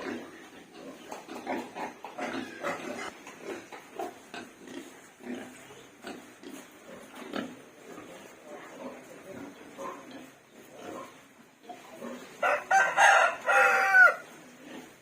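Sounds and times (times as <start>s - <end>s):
farm animal calls: 0.0s - 15.0s.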